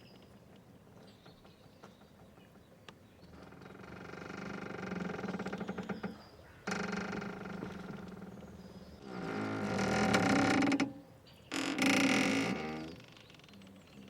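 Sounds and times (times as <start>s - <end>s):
boat rope creaking: 3.3s - 14.0s.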